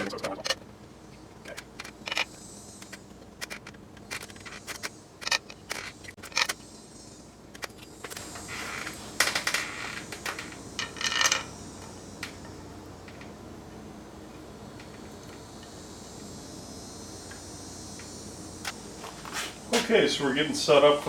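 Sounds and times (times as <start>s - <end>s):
small metallic clicks and scrapes: 0.0s - 6.6s, 7.5s - 13.3s.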